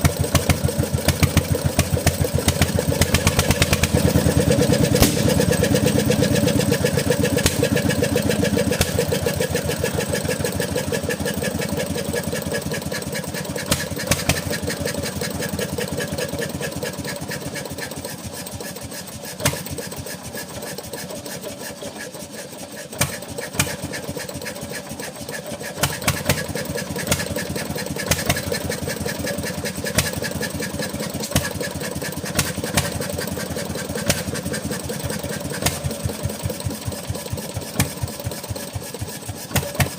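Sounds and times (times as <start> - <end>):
engine running with rapid firing pulses: 0.0 - 39.9.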